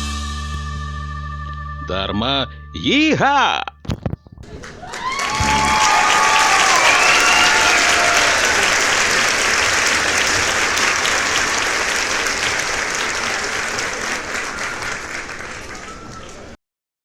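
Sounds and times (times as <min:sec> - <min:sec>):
applause: 0:04.4 - 0:16.6
voices or whistles: 0:04.5 - 0:16.6.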